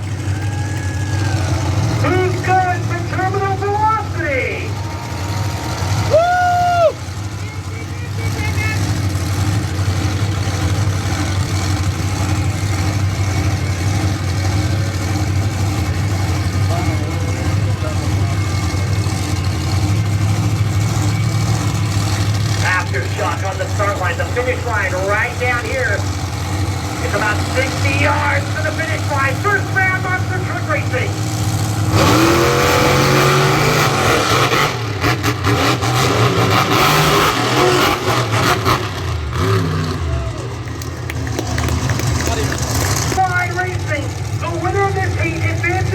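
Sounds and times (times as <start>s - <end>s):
truck engines idling: 0.0s - 45.9s.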